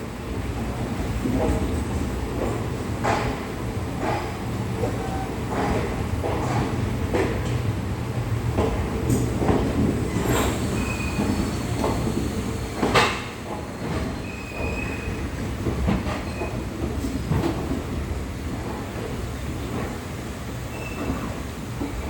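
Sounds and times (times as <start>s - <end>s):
train rumbling over rails: 0.0s - 22.0s
high wheel squeals: 10.1s - 11.8s.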